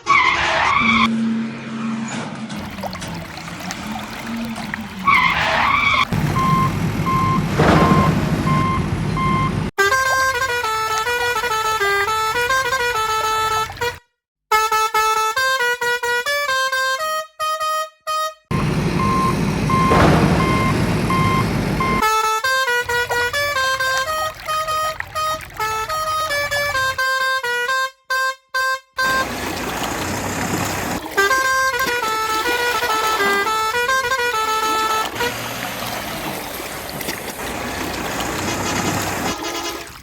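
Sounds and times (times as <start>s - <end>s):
cartoon engine rumble: 2.6s - 9.7s, 18.5s - 22.0s
horn tooting: 3.7s - 36.5s, 37.4s - 40.0s.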